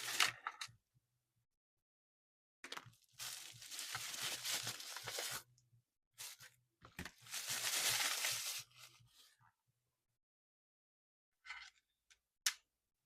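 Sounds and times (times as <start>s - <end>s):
packaging rustling: 3.1s - 5.4s, 7.1s - 8.8s
packaging being torn and crinkled: 3.2s - 5.4s, 7.2s - 8.7s.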